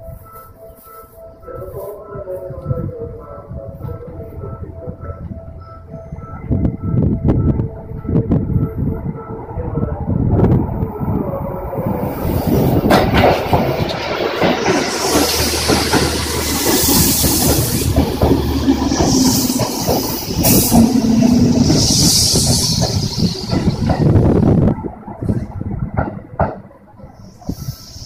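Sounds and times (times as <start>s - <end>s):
electric train passing: 0.0s - 28.0s
high hiss: 14.6s - 23.8s, 27.2s - 28.0s.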